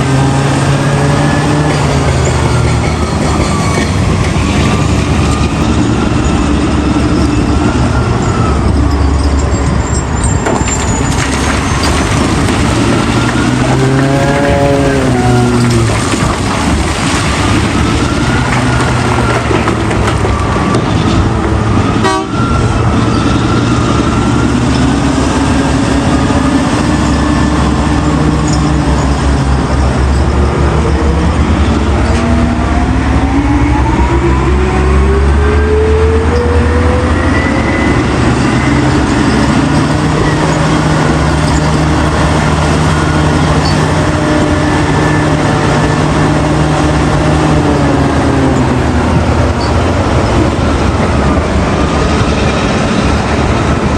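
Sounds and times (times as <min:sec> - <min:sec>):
diesel earthmoving machinery running: 0:00.0 - 0:53.9.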